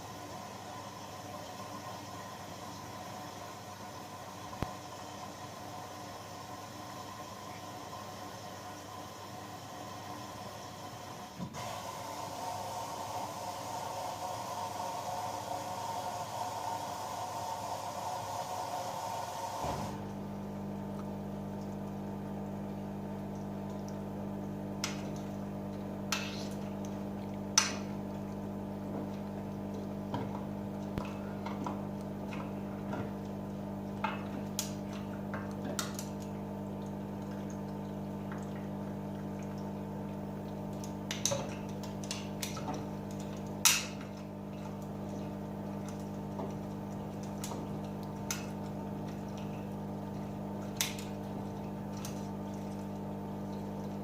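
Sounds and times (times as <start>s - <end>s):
washing machine motor hum: 0.0s - 54.0s
water sloshing in drum: 20.0s - 54.0s.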